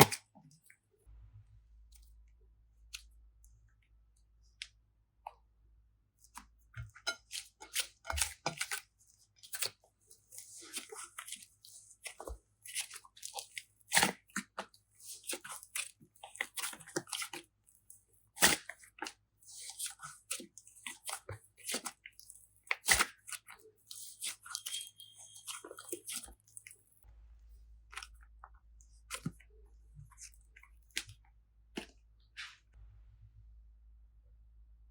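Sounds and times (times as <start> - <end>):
hands squishing slime: 6.2 - 27.0, 27.6 - 32.7.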